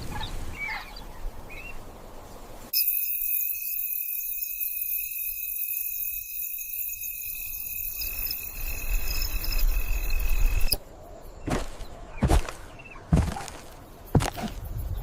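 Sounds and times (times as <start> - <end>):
insect-like chirring: 2.7 - 12.6
dull thuds: 11.5 - 14.6.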